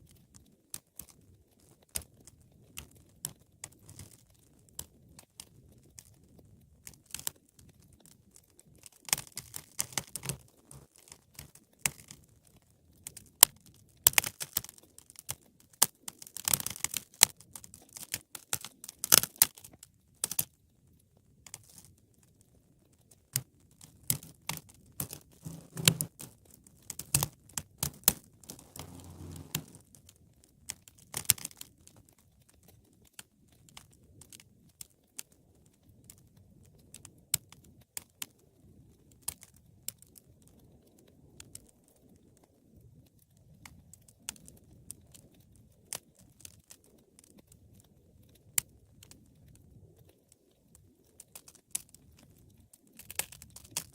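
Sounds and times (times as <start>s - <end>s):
wood fire crackling and popping: 28.5s - 29.8s.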